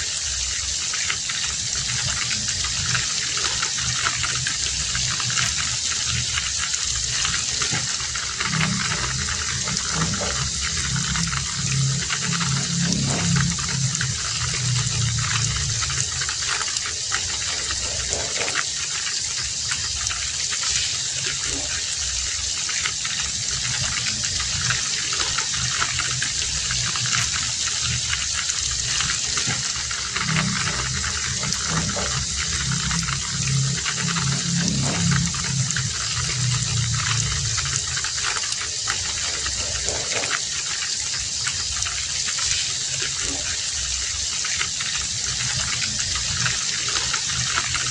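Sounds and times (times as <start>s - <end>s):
heavy rain hissing: 0.0s - 47.9s
low rumble: 7.0s - 18.2s, 26.2s - 38.2s.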